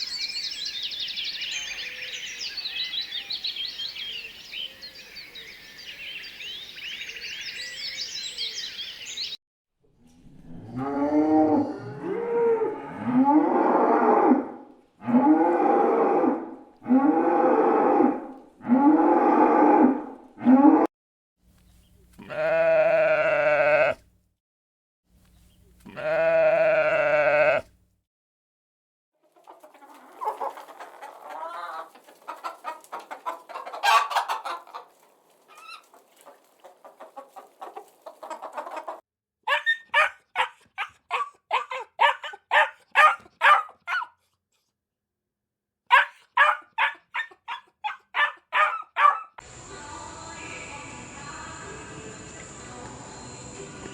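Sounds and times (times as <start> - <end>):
animal bleating: 22.1 - 24.1, 25.8 - 27.7
chickens clucking: 29.2 - 39.0.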